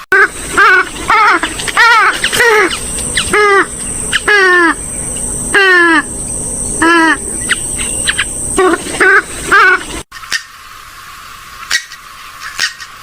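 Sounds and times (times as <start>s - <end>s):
rail bird calling loudly: 0.0s - 10.6s.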